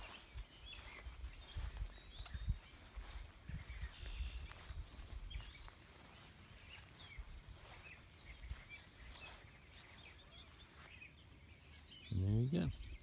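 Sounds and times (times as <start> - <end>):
birds chirping faintly: 0.0 - 13.0.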